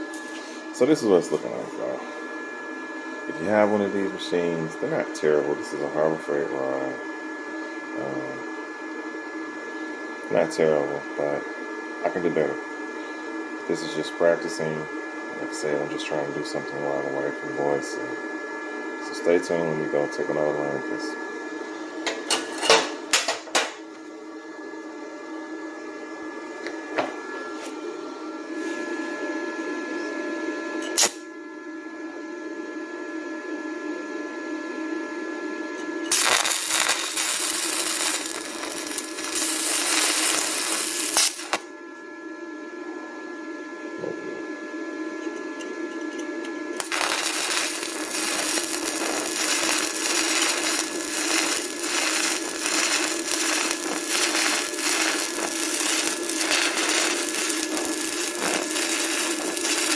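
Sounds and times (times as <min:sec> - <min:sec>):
welding arc crackling: 0:30.9 - 0:31.2, 0:36.1 - 0:41.7, 0:46.8 - 0:59.9
steady hum: 0:35.5 - 0:42.7, 0:43.5 - 0:59.9.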